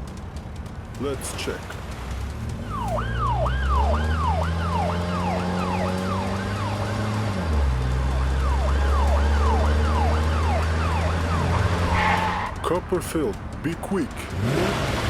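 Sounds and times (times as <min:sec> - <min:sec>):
low engine hum: 0:00.0 - 0:15.0
siren yelp: 0:02.6 - 0:12.6.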